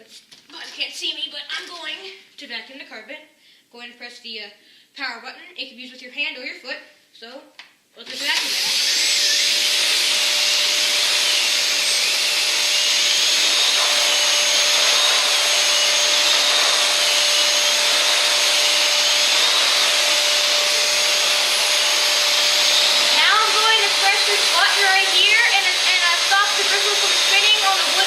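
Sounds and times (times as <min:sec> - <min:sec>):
vacuum cleaner running on carpet: 0:08.2 - 0:28.0.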